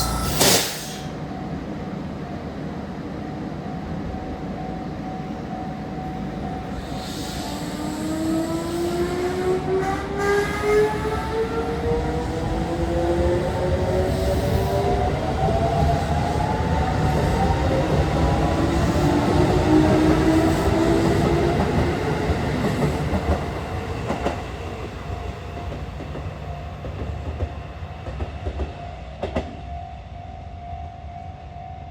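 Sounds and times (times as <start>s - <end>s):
steady high tone: 0.0s - 1.7s
train wheel rumble and clacks: 7.0s - 29.7s.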